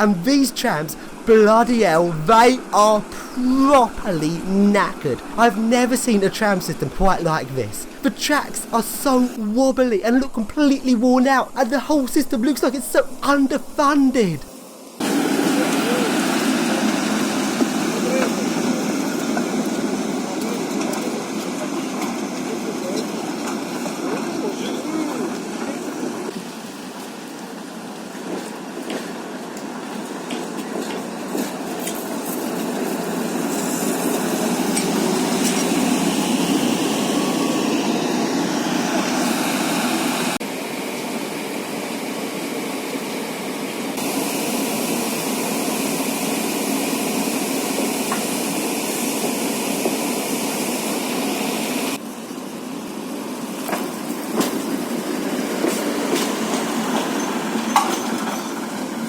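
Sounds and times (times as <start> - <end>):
tram rumbling on track: 0.0 - 13.8, 53.2 - 59.0.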